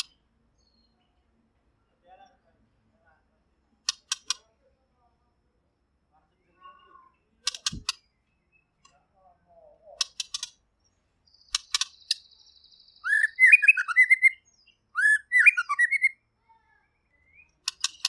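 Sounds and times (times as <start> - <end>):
bird singing whistled phrases: 12.2 - 16.2, 17.0 - 17.6.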